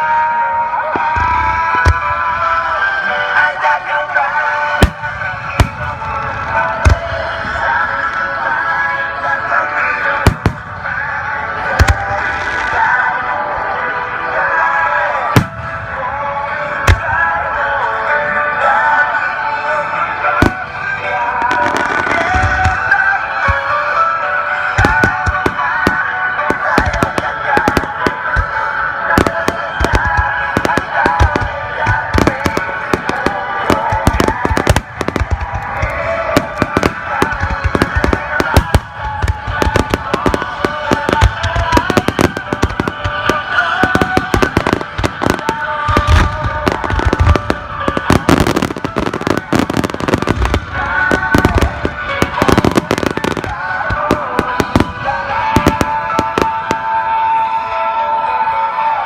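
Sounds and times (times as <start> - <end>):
fireworks cracking and booming: 0.0 - 58.0
music: 0.0 - 59.0.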